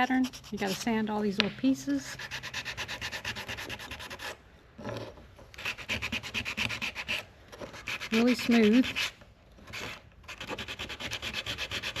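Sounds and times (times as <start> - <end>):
sandpaper rubbing on wood: 2.0 - 4.4, 5.6 - 9.1, 9.7 - 12.0.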